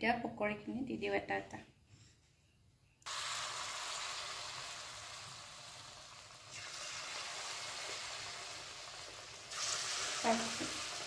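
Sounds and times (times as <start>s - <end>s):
batter frying in hot oil: 3.0s - 11.0s.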